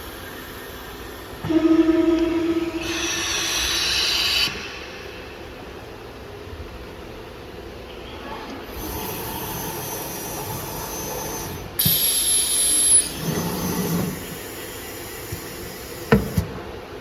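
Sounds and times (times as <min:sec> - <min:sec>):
hissing burst with high whine: 0:00.0 - 0:06.1
machine running with hiss: 0:00.0 - 0:06.2, 0:08.7 - 0:17.0.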